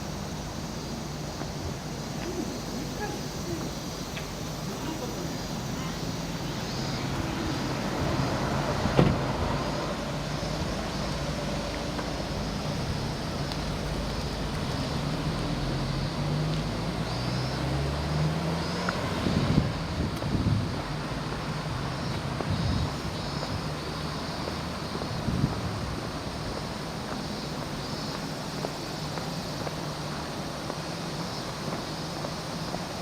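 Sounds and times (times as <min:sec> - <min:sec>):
traffic noise: 0:00.0 - 0:33.0.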